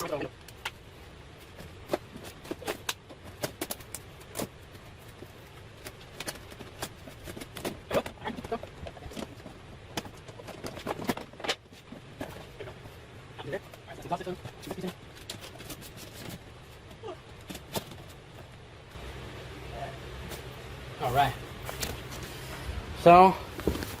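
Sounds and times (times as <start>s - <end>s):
plastic parts clicking and knocking: 1.6s - 12.8s.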